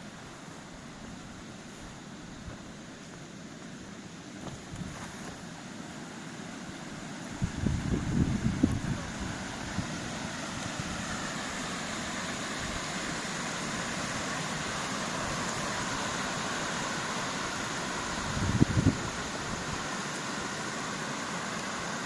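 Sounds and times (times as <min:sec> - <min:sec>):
rushing mountain water: 0:00.0 - 0:22.0
wind gusts on microphone: 0:07.4 - 0:11.1, 0:18.0 - 0:19.8.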